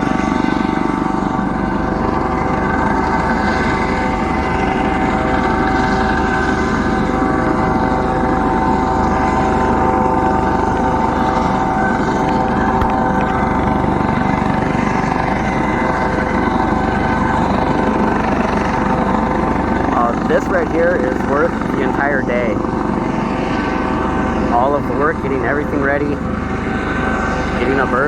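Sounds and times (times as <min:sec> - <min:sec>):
helicopter turbine whine: 0:00.0 - 0:28.0
rotor and downdraft noise: 0:08.6 - 0:15.0.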